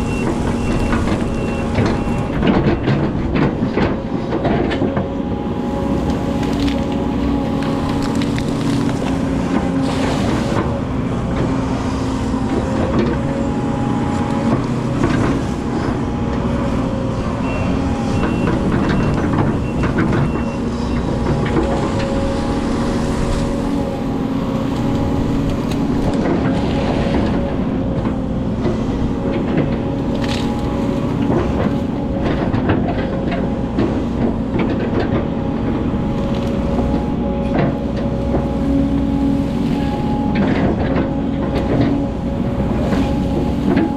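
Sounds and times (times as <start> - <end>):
excavator diesel engine running: 0.0 - 43.9
knocks and clanks: 0.3 - 5.2.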